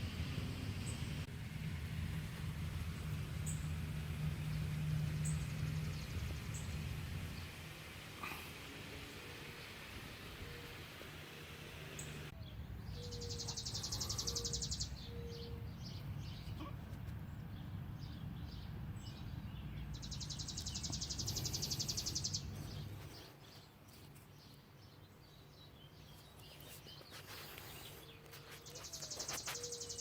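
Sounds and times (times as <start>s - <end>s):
steady low rumble: 0.0s - 8.2s.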